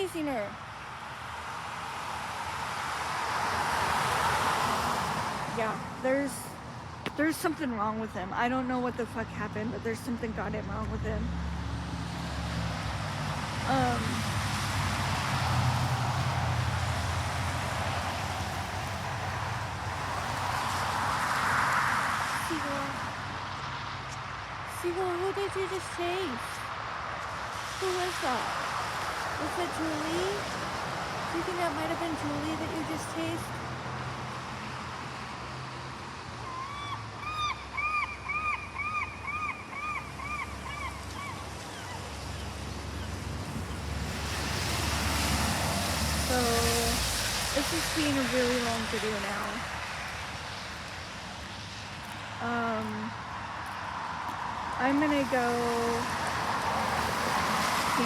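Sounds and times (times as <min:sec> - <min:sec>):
road traffic hum: 0:00.0 - 0:58.0
seagull laughing calls: 0:36.5 - 0:42.1.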